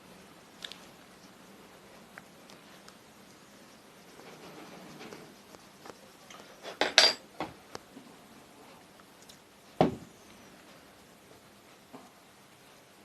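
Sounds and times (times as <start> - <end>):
metal tools clinking: 6.6 - 7.2.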